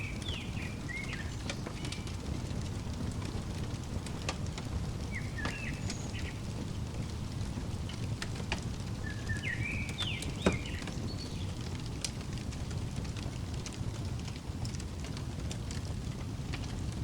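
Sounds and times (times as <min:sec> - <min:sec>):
bird chirping: 0:00.0 - 0:02.6, 0:03.2 - 0:11.7
wood fire crackling: 0:00.0 - 0:17.0.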